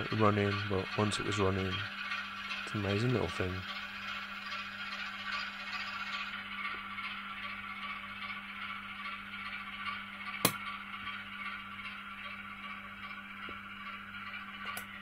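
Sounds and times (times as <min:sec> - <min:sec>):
model train whirring rattle: 0:00.0 - 0:15.0
sharp click: 0:10.4 - 0:10.6, 0:14.6 - 0:14.9.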